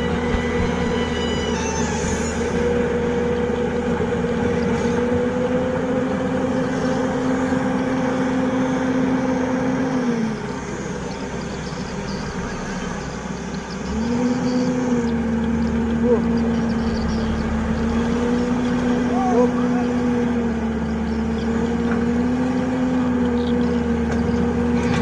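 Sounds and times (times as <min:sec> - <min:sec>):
excavator diesel engine: 0:00.0 - 0:25.0.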